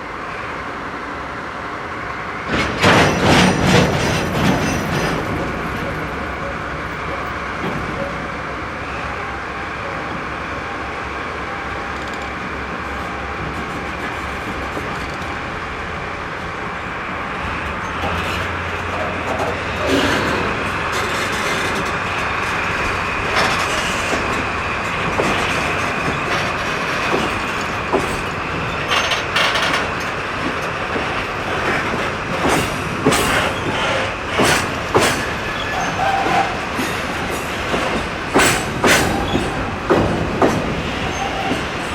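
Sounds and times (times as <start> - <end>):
electric locomotive hum: 0.0 - 41.9
train wheels clacking over rail joints: 2.5 - 8.6, 17.4 - 41.9.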